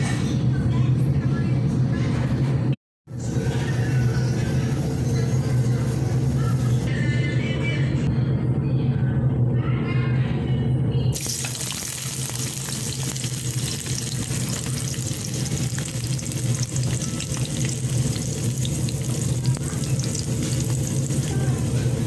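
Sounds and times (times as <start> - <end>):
onion and garlic sizzling in oil: 11.2 - 22.0.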